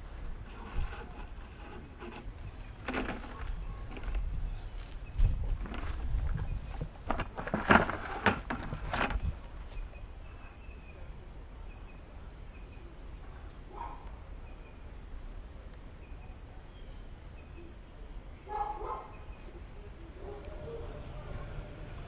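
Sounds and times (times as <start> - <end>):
faint bird chirps: 9.2 - 15.0, 15.9 - 21.8.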